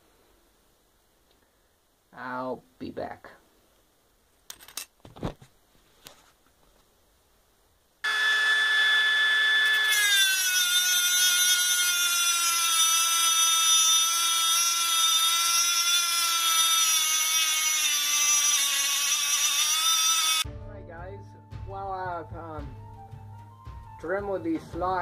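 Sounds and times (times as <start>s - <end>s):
rotary tool grinding metal: 8.0s - 20.4s.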